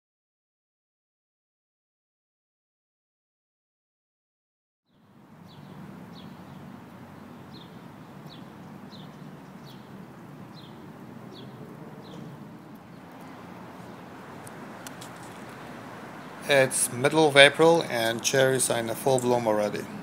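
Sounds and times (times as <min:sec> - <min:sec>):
songbird chirping: 0:04.9 - 0:20.0
low outdoor rumble: 0:05.0 - 0:20.0.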